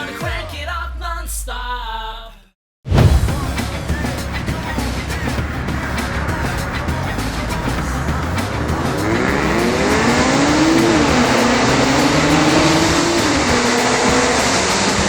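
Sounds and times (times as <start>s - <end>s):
car engine accelerating hard: 3.4s - 15.0s.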